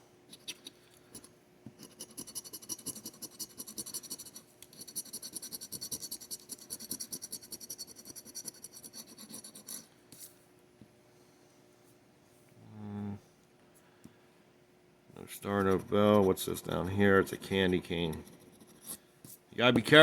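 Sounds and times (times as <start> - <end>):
lottery ticket being scratched: 1.8 - 9.9, 15.4 - 19.0.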